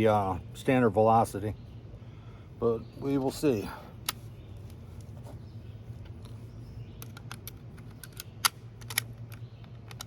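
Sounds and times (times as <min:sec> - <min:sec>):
steady low hum: 0:00.0 - 0:10.0
rifle bolt clicking: 0:07.0 - 0:10.0.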